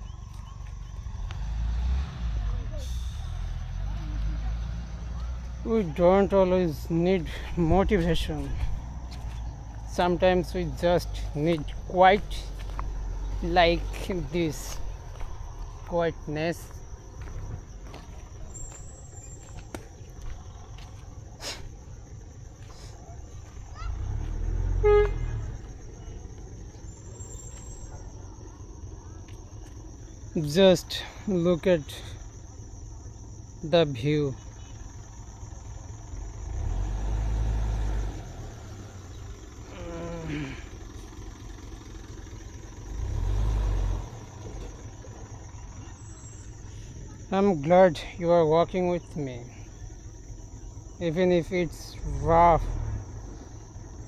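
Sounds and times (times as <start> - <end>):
low steady rumble: 2.4 - 31.2.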